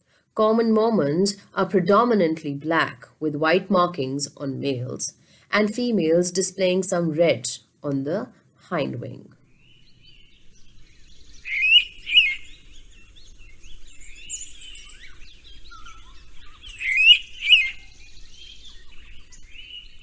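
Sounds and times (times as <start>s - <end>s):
birds chirping and trilling: 8.8s - 20.0s.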